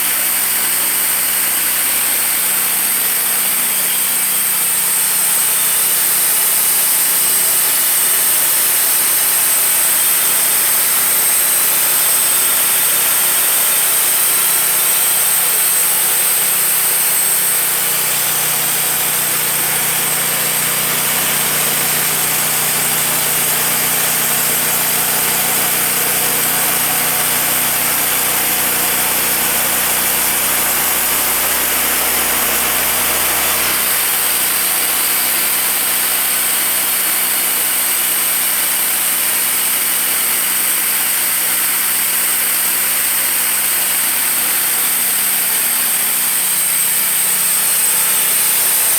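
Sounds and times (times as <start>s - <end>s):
bandsaw mill running: 0.0s - 48.9s
low hum: 17.2s - 33.8s.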